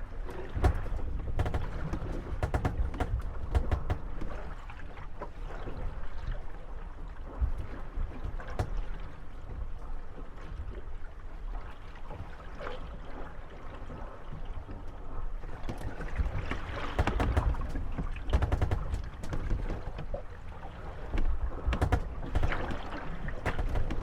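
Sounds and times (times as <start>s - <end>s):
boats knocking and creaking: 0.0s - 24.0s
water lapping against wooden hulls: 0.0s - 24.0s.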